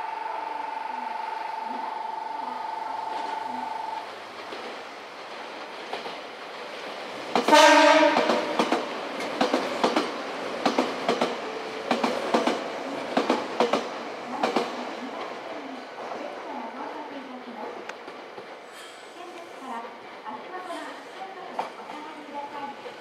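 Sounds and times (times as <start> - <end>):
electric train horn: 0.0 - 4.0, 7.5 - 8.6.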